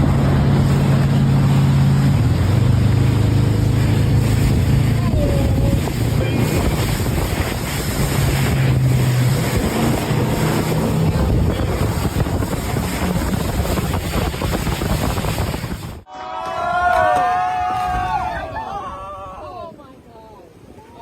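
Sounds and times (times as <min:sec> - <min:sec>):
wind buffeting microphone: 0:00.0 - 0:16.1.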